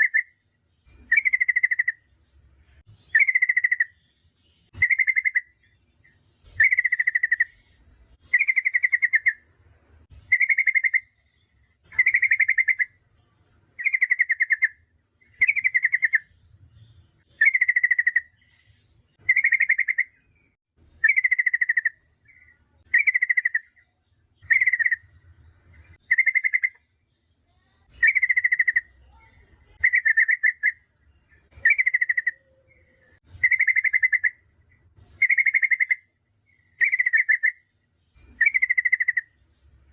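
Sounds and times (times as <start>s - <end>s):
bird chattering call: 1.0s - 2.1s, 3.1s - 4.1s, 4.7s - 9.4s, 10.2s - 11.2s, 11.8s - 13.0s, 13.8s - 16.3s, 17.4s - 20.2s, 21.0s - 25.1s, 25.9s - 26.9s, 27.6s - 30.9s, 31.5s - 37.6s, 38.2s - 39.4s.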